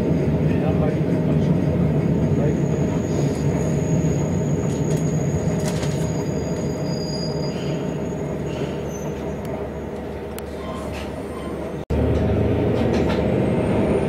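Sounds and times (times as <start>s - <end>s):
train rumbling on rails: 0.0s - 14.0s
faint high squeal: 2.6s - 9.4s.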